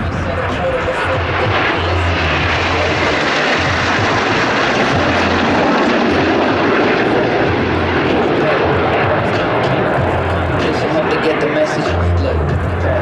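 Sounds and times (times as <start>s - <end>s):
aircraft engine: 0.0s - 13.0s.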